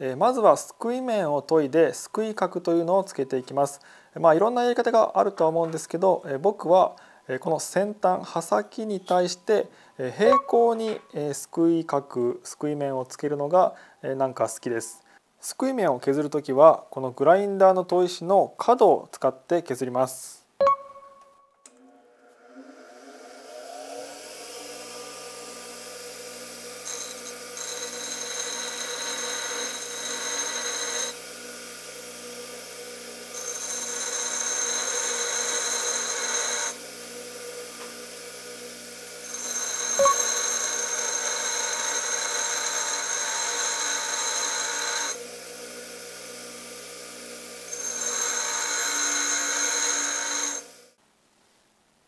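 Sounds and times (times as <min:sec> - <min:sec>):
bench grinder motor hum: 0:22.1 - 0:51.0
tool bit grinding hiss and whine: 0:22.2 - 0:51.0.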